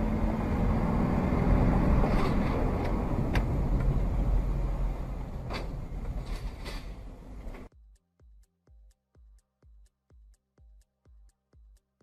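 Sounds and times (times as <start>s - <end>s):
road vehicle rumble: 0.0s - 7.7s.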